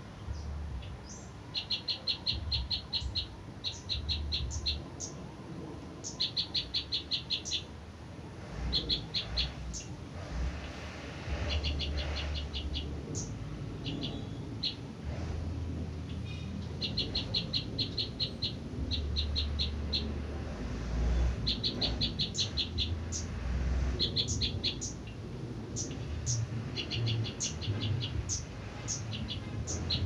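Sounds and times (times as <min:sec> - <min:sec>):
low rumble: 0:00.0 - 0:01.5, 0:07.7 - 0:30.0
songbird chirping: 0:00.0 - 0:07.8, 0:08.5 - 0:30.0.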